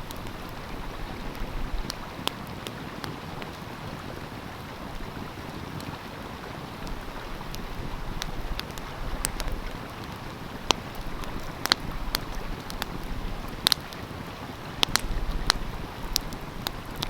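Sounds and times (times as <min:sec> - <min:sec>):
stream flowing: 0:00.0 - 0:17.0
wood fire crackling: 0:00.0 - 0:17.0
sharp fire pops: 0:14.8 - 0:17.0.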